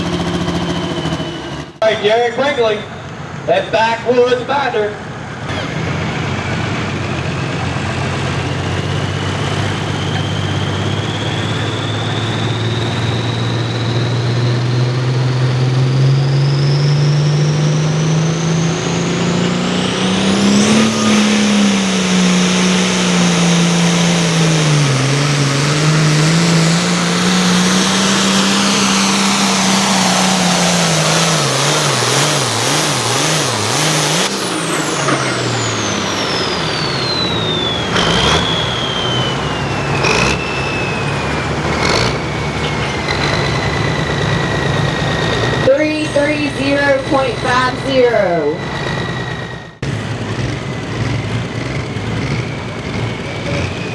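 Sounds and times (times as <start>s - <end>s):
tractor diesel engine revving: 0.0s - 53.9s
turbo whistle: 18.1s - 49.8s.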